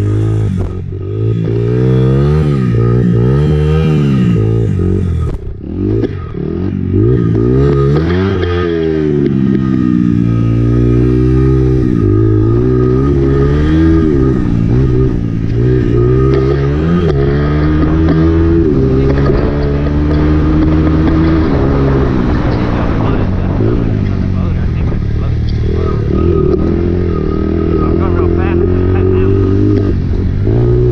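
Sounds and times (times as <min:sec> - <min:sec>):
dirt bike engine revving: 0:00.0 - 0:30.9.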